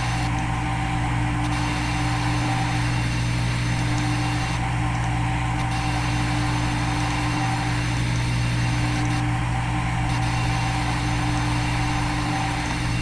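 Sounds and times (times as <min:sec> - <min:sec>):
milling machine hum: 0:00.0 - 0:13.0.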